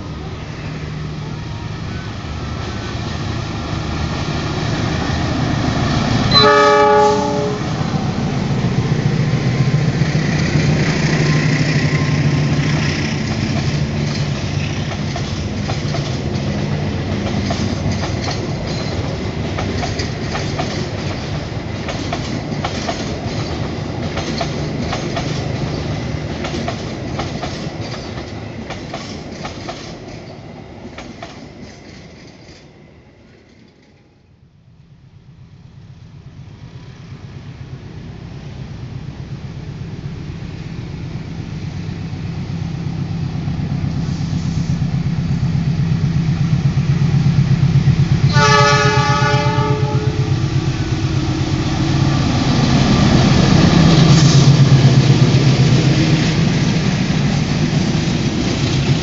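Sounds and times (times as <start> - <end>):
train horn blast: 6.3 - 7.9, 48.2 - 50.5
train wheels clickety-clack: 8.2 - 34.0, 43.8 - 59.0
diesel engine drone: 37.6 - 59.0.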